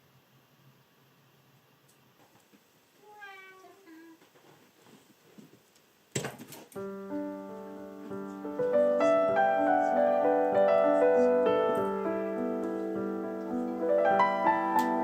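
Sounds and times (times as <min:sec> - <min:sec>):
slow piano music: 0:06.8 - 0:15.0.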